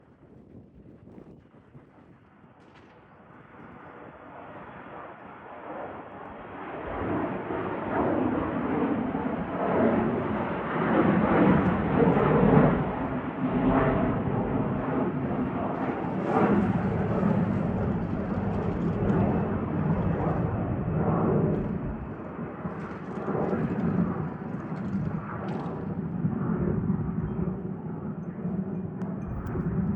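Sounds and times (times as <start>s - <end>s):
jet airliner taking off: 3.4s - 29.9s.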